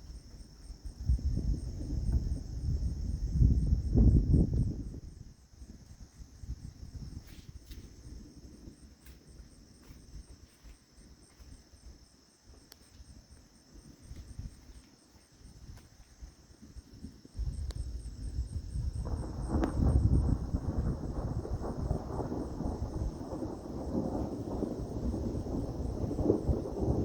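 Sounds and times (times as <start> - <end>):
wind buffeting microphone: 0.0 - 12.1, 15.4 - 27.0
insects trilling: 0.0 - 27.0
thunder rumbling: 1.0 - 5.8, 17.0 - 27.0.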